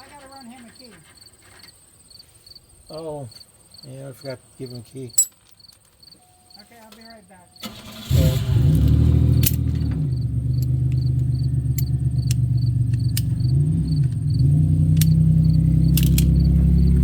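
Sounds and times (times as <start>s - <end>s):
crickets chirping: 0.0s - 17.0s
car engine revving: 7.6s - 17.0s.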